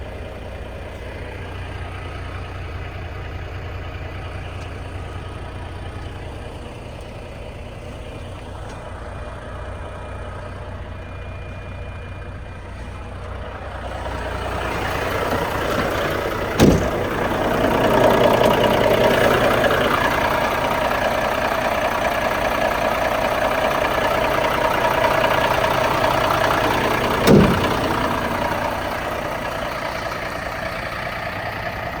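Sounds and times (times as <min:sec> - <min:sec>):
truck diesel engine idling: 0:00.0 - 0:32.0
sharp knocks: 0:16.6 - 0:18.0, 0:27.2 - 0:28.1.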